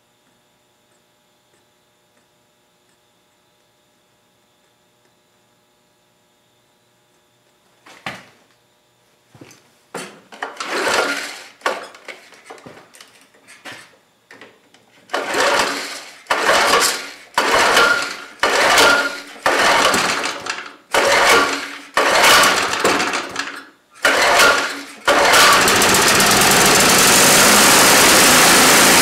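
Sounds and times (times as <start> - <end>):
engine cranking without starting: 10.4 - 12.4, 15.1 - 29.0
recoil starter pulls: 10.4 - 12.6, 15.1 - 29.0.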